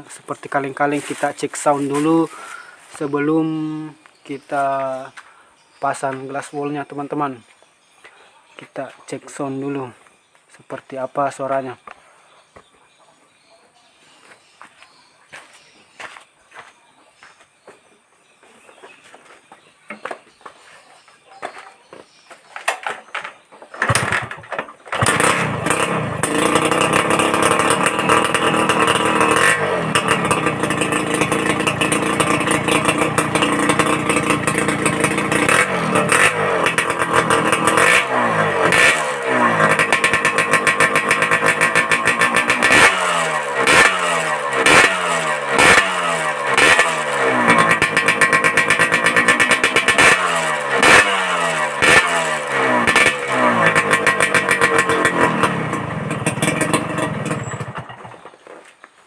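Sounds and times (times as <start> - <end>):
two-stroke motorcycle engine revving: 0.4 - 5.1, 22.8 - 58.3.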